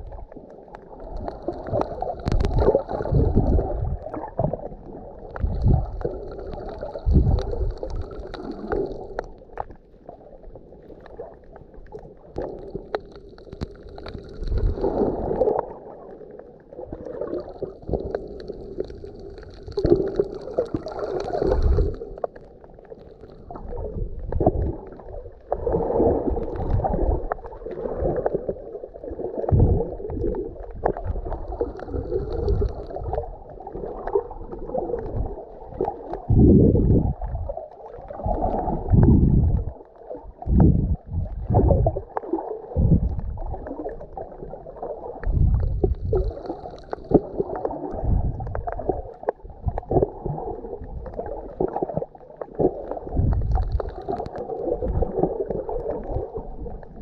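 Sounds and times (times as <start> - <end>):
water gurgling underwater: 0.0 - 57.0
low thumps of water surging: 29.4 - 33.3, 34.8 - 44.2, 45.1 - 57.0.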